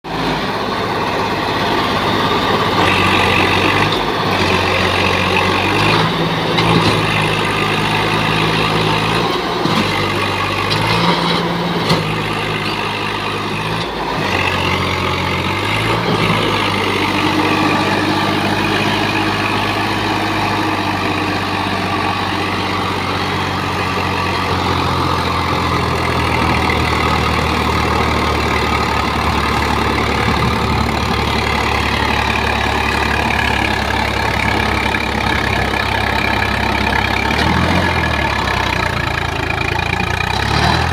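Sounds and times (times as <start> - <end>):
tractor diesel engine straining: 0.0 - 40.9.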